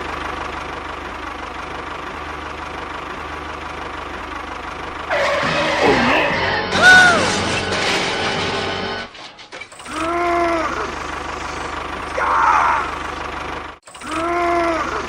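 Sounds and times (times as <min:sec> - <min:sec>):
small engine idling: 0:00.0 - 0:07.0, 0:09.7 - 0:15.0
loud sliding-pitch sound: 0:05.1 - 0:08.2.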